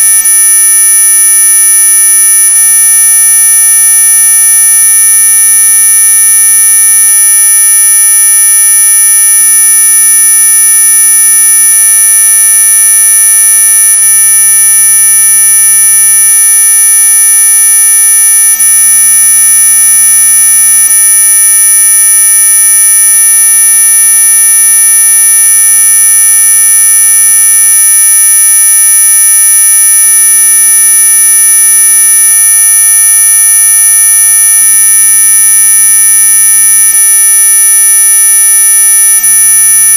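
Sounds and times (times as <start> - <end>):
electronic buzzing tone: 0.0 - 0.8.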